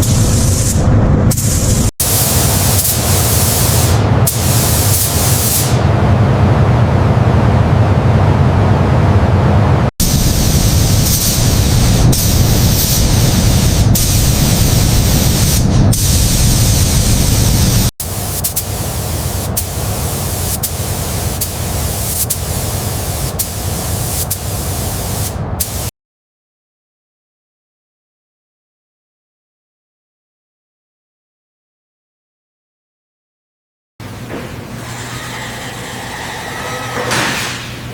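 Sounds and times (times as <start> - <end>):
loud hissing spray: 0.0 - 5.9, 10.0 - 25.9.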